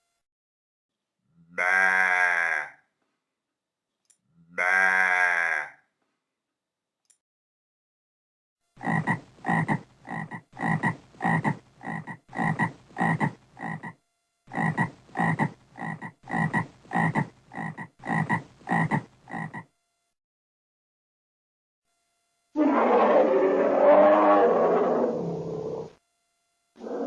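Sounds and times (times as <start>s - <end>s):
frog croaking: 1.5s - 2.8s, 4.5s - 5.8s, 8.8s - 19.7s.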